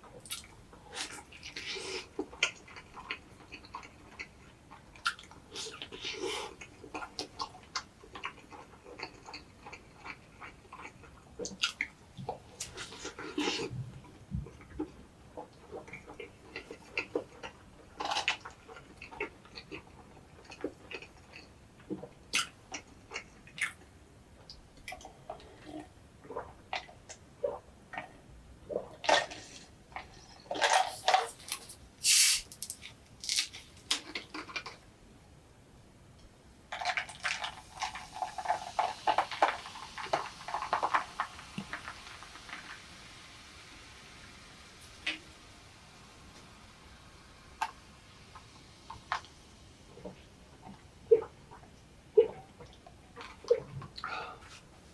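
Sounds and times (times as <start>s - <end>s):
close chewing with moist mouth clicks: 0.0s - 30.6s.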